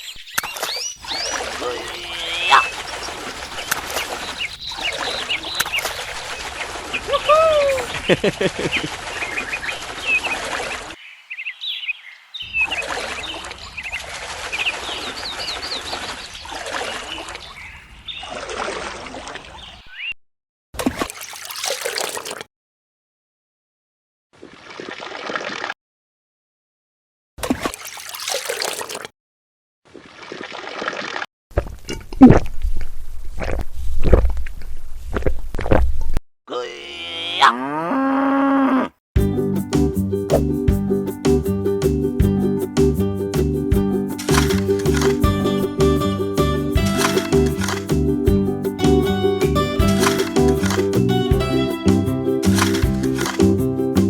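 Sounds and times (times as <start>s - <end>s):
birds chirping: 0.0s - 18.4s
water trickling and splashing: 0.3s - 19.9s, 20.8s - 22.5s, 27.4s - 29.1s, 29.9s - 31.3s, 44.0s - 54.0s
lower arching bird call: 1.2s - 2.8s.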